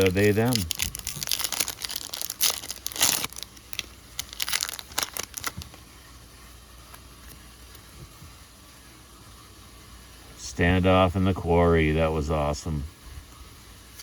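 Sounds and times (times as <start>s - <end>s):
trading cards rustling and clicking: 0.0s - 5.8s
faint room hum: 0.0s - 14.0s.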